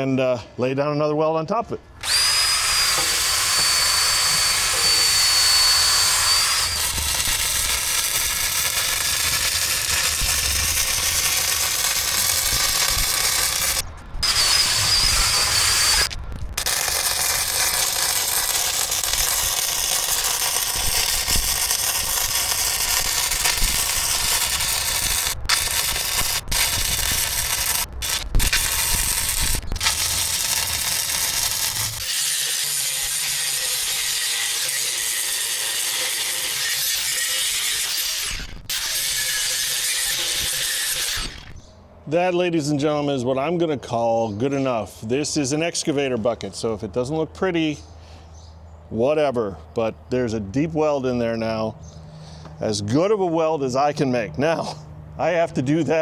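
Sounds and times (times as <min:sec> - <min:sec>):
welder crackling hiss: 0:02.0 - 0:41.6
angle grinder whining: 0:02.0 - 0:41.7.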